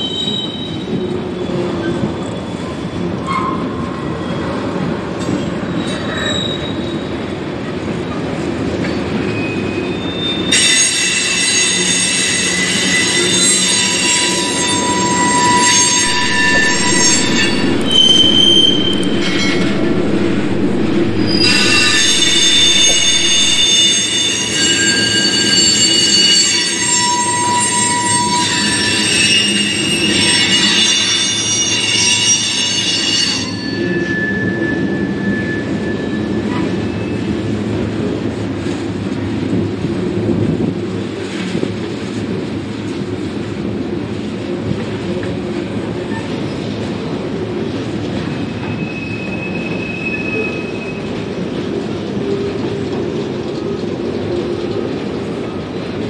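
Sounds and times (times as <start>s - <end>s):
train wheels rumbling on rail: 0.0s - 56.0s
high-pitched wheel squeal: 5.6s - 7.2s, 9.2s - 37.5s, 48.2s - 51.4s.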